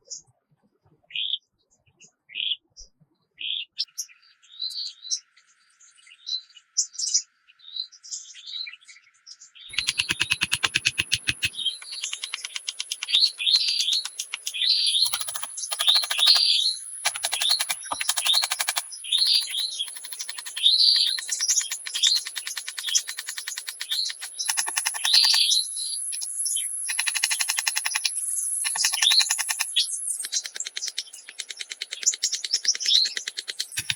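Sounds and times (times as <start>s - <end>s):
birds chirping: 9.7s - 33.9s
fast run of clicks: 9.7s - 33.9s.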